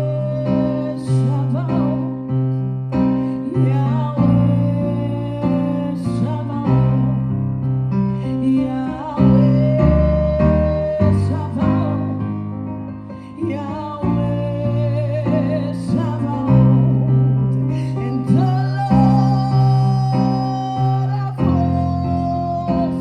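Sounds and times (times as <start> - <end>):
person singing slow melody: 0.0 - 2.4, 8.2 - 23.0
bass notes: 3.8 - 23.0.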